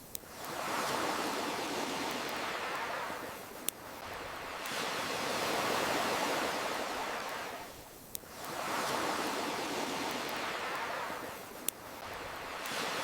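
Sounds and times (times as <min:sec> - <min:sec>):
ocean waves washing: 0:00.2 - 0:13.0.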